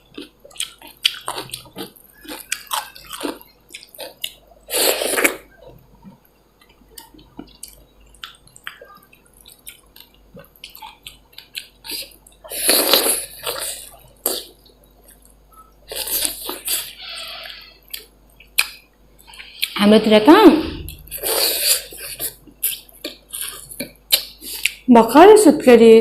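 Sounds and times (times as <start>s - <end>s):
wet chewing: 0.0s - 19.8s.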